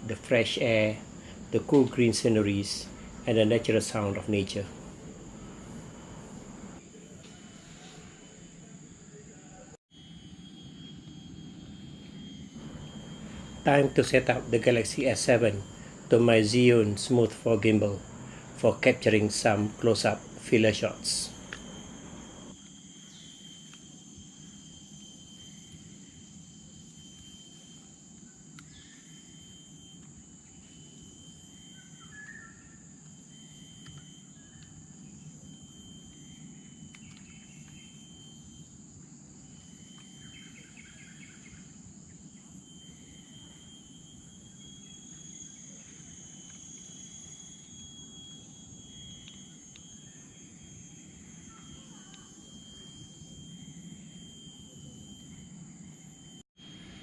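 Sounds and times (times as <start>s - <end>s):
high-pitched insect drone: 0.0s - 57.0s
bird chirps: 30.4s - 35.3s, 36.4s - 38.2s, 39.5s - 54.5s.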